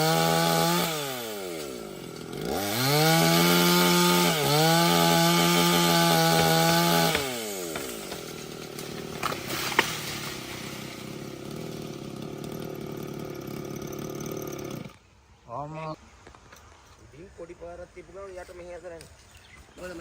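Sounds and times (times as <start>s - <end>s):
chainsaw engine running: 0.0s - 15.0s
sharp cracks: 6.3s - 12.0s.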